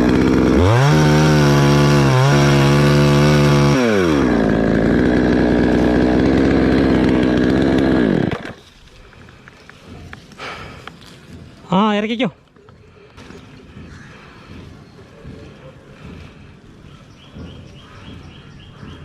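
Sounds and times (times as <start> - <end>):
chainsaw cutting wood: 0.0 - 11.6, 15.2 - 16.6.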